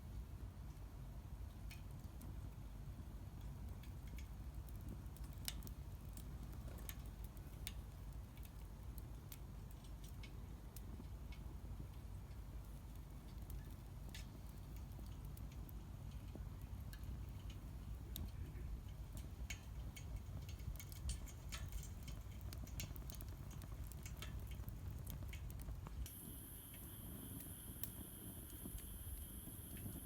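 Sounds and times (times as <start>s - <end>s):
low fire rumble: 0.0s - 30.0s
wood fire crackling and popping: 0.0s - 30.0s.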